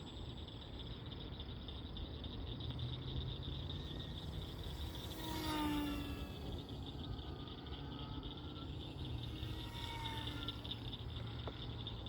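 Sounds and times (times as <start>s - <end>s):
crickets chirping: 0.0s - 12.0s
model plane whining past: 4.0s - 12.0s.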